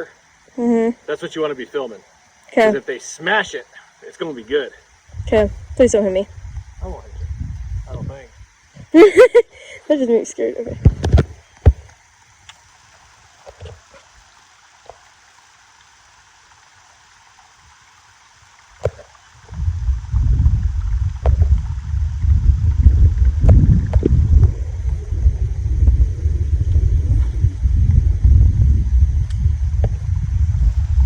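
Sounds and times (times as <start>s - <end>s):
wind buffeting microphone: 5.1s - 9.0s, 10.6s - 11.4s, 19.4s - 31.0s.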